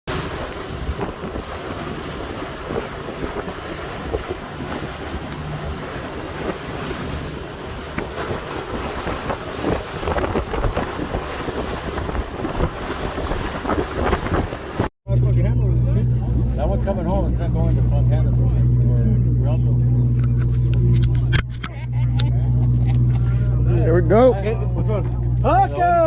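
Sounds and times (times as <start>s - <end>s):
water washing: 0.0s - 14.9s
wind buffeting microphone: 0.1s - 14.9s
steady low rumble: 0.1s - 26.0s.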